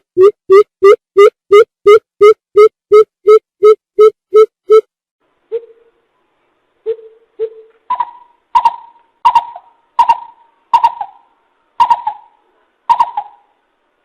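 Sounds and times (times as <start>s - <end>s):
coucal deep hooting calls: 7.9s - 13.6s.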